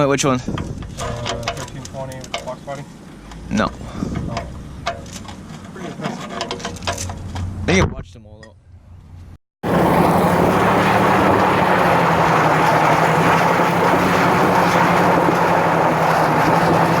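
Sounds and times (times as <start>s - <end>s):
car engine running hard: 9.6s - 17.0s.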